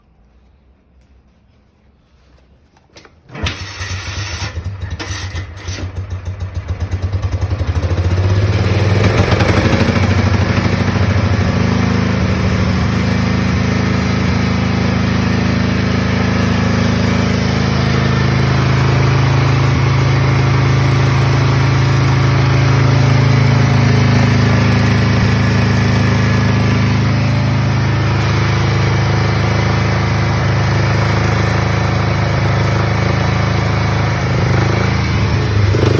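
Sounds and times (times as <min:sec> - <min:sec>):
engine starting: 0:03.0 - 0:06.4.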